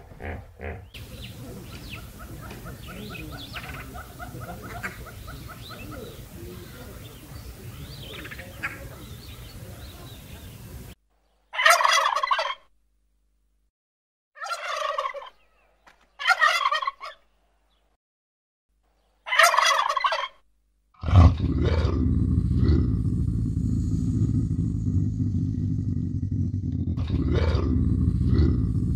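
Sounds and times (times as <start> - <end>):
turkeys gobbling: 0.2 - 6.8, 11.6 - 12.7, 14.4 - 15.4, 16.2 - 17.2, 19.3 - 20.4
steady low rumble: 21.4 - 28.9.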